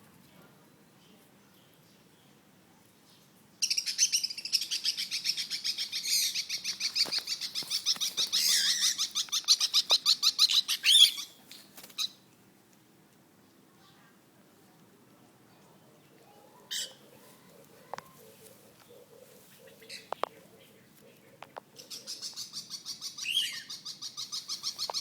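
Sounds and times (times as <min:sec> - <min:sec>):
lovebirds chirping: 0:00.6 - 0:12.3, 0:15.2 - 0:25.0.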